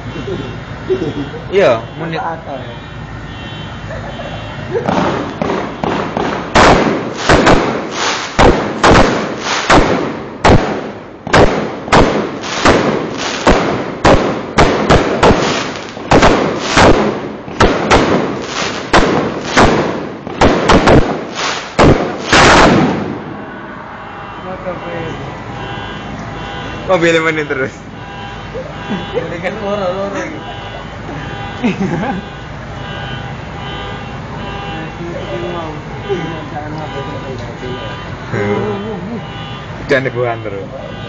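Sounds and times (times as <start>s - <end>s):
fireworks bangs: 4.5s - 24.4s.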